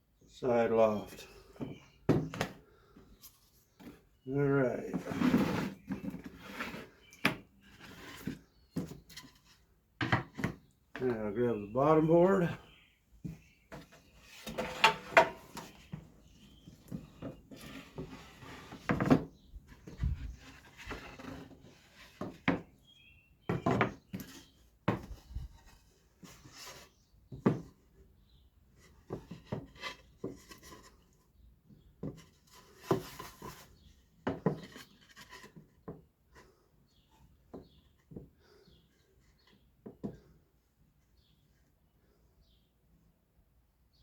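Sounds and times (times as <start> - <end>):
wood scraping on wood: 1.1 - 22.7, 28.8 - 31.2, 32.0 - 36.6.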